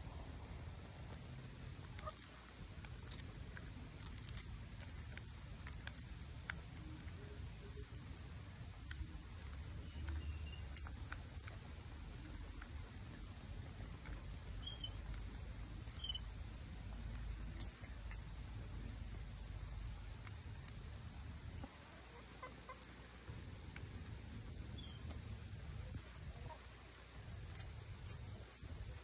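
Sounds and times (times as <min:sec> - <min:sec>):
steady low rumble: 0:00.0 - 0:29.0
faint high bird chirps: 0:09.4 - 0:11.0, 0:14.2 - 0:16.4, 0:24.4 - 0:25.2.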